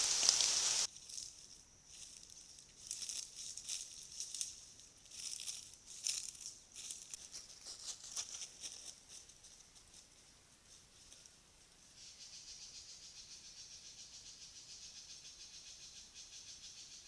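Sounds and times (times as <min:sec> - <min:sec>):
animal footsteps in dry leaves: 0:00.0 - 0:11.4.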